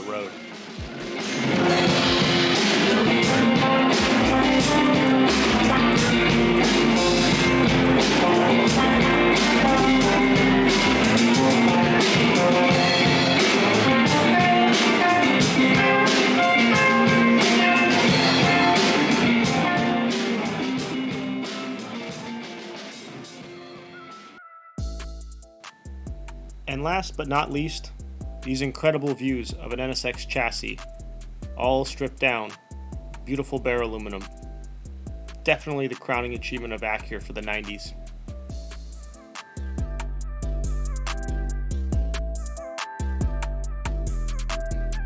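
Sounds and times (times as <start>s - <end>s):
drum kit: 0.0s - 45.0s
electric guitar: 0.3s - 24.4s.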